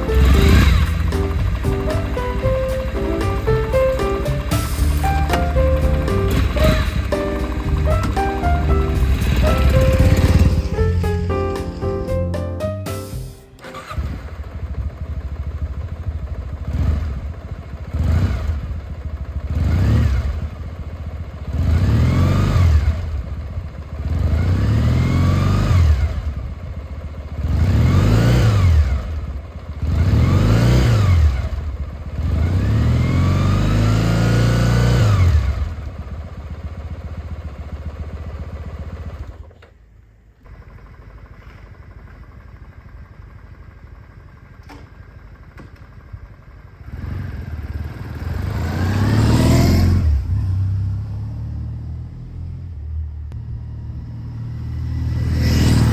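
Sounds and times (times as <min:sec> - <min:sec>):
motorcycle engine idling and revving: 0:00.0 - 0:11.4, 0:13.6 - 0:55.9.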